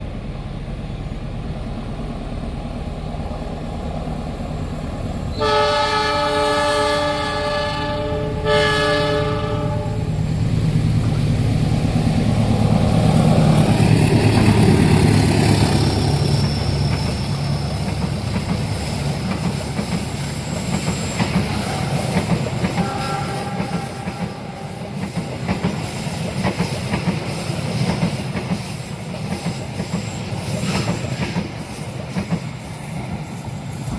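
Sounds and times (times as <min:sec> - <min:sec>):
train horn blasts: 0:05.3 - 0:10.2, 0:22.7 - 0:24.9
locomotive engine rumble: 0:08.2 - 0:25.0.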